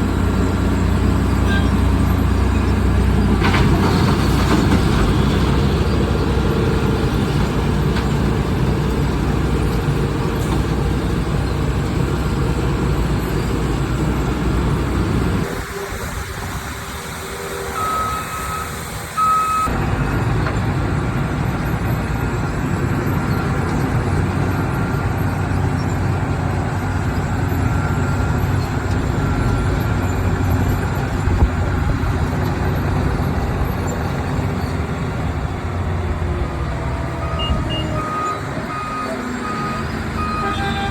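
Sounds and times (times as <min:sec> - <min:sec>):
heavy road machinery noise: 0:00.0 - 0:40.9
short reversing beeps: 0:17.7 - 0:19.7, 0:37.2 - 0:40.5.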